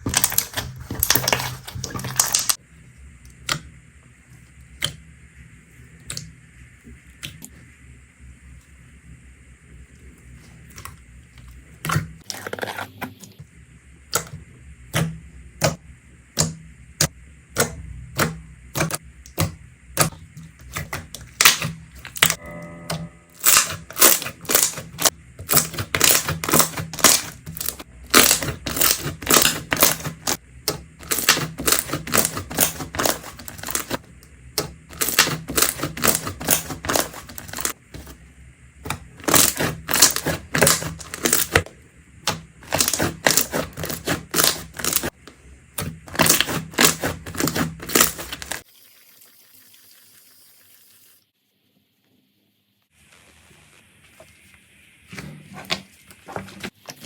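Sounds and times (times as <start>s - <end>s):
slime popping and crackling: 0.1s - 2.6s, 23.4s - 30.4s, 39.2s - 41.6s.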